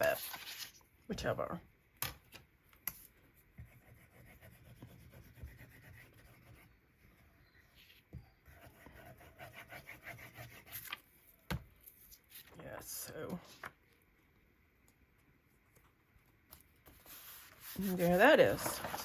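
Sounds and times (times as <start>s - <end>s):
paper being rubbed by hand: 16.9s - 19.0s.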